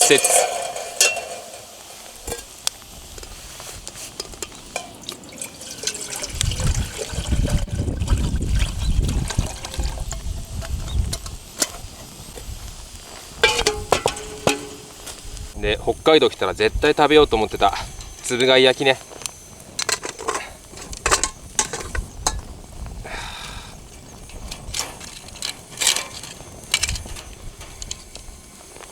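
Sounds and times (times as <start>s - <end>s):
wind rumbling on microphone: 6.1s - 28.9s.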